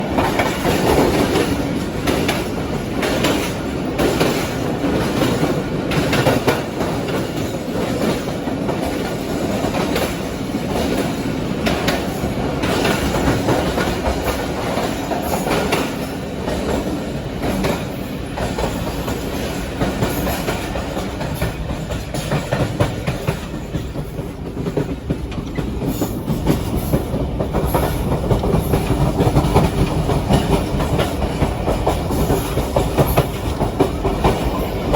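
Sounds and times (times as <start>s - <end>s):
train carriages rumbling: 0.0s - 34.9s
wheels clicking over rail joints: 0.0s - 34.9s.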